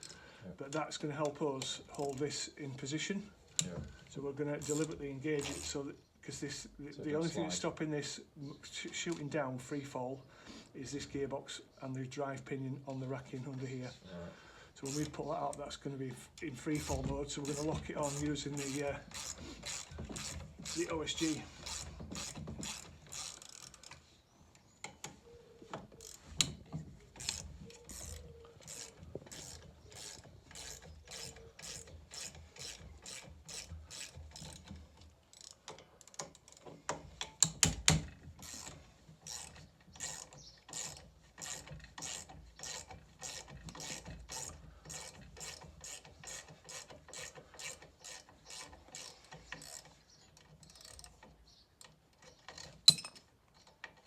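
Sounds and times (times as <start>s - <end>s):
ratchet spanner clicking: 16.8s - 20.9s, 21.6s - 24.0s, 27.2s - 34.7s, 38.4s - 49.9s.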